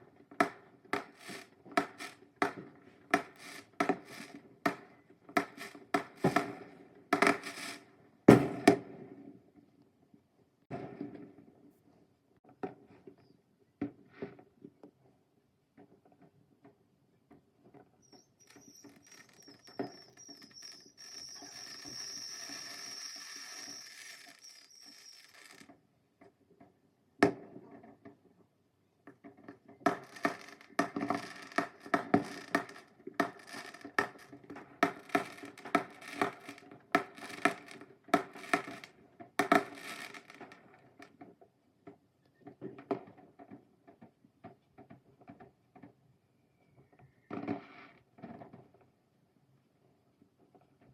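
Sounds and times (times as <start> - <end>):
firework crackling pops: 0.4 - 8.9, 18.1 - 25.7, 29.8 - 40.8
firework whistle: 1.0 - 2.2, 3.2 - 4.4, 18.1 - 25.7.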